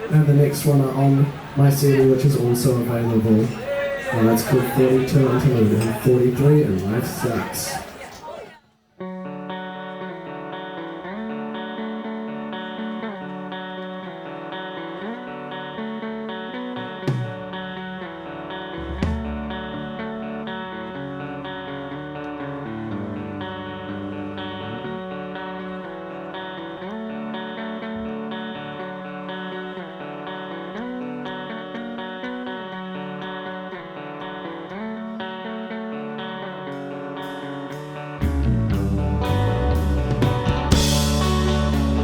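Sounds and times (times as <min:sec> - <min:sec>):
electric guitar chords: 0:00.0 - 0:07.7, 0:09.0 - 0:42.0
full band with drums: 0:17.0 - 0:17.6, 0:18.7 - 0:20.1, 0:37.2 - 0:42.0.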